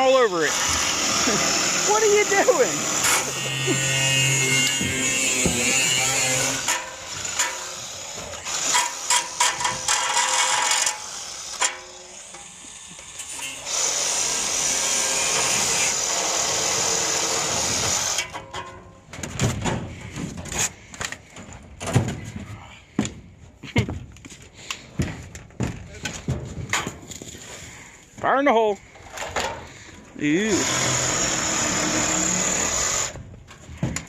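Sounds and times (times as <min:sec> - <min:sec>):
power tool cutting metal: 0:00.3 - 0:18.4, 0:30.4 - 0:33.2
metal knocks and clanks: 0:04.2 - 0:10.9, 0:25.0 - 0:27.2.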